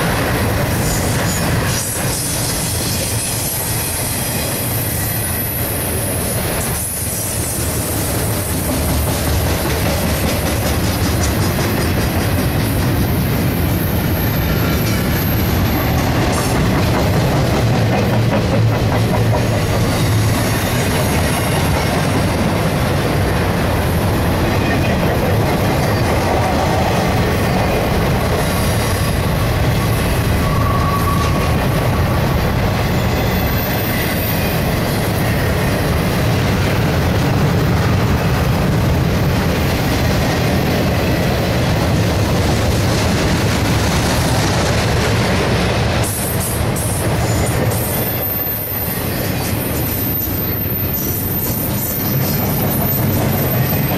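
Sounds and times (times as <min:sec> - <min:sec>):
freight train rumbling past: 0:00.0 - 0:53.9.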